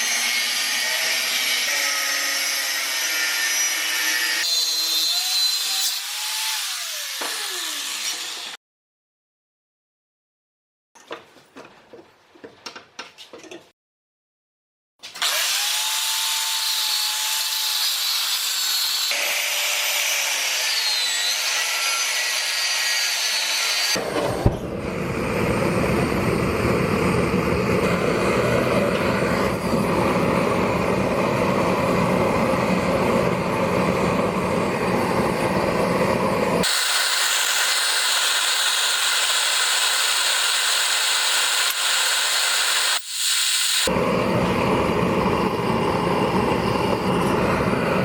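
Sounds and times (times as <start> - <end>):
metalworking machine noise: 24.0 - 48.0.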